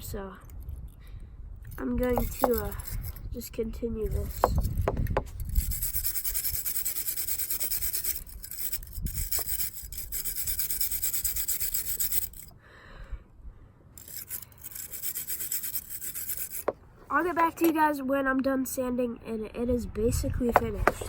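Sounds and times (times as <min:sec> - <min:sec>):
wire brush scrubbing metal: 0:04.1 - 0:12.5, 0:14.0 - 0:17.4.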